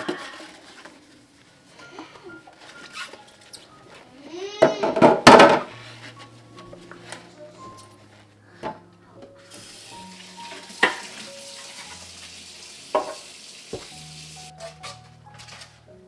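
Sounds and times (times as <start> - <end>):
soft background music: 0.0 - 16.0
faint hiss of running water: 9.5 - 14.5.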